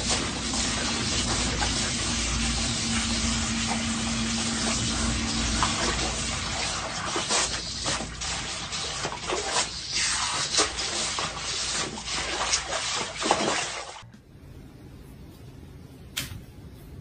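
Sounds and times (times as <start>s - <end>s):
low steady hum: 0.0s - 17.0s
dog splashing in water: 5.4s - 14.0s.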